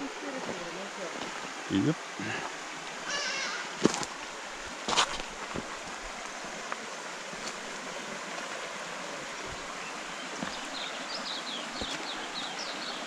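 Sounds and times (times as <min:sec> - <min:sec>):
river water rushing over rocks: 0:00.0 - 0:13.0.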